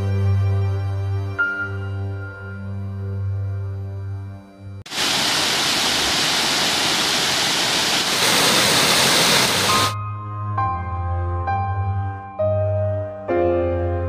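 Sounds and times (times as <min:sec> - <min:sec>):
soft sustained background music: 0:00.0 - 0:04.8, 0:10.0 - 0:14.0
water pouring over weir: 0:04.9 - 0:10.0.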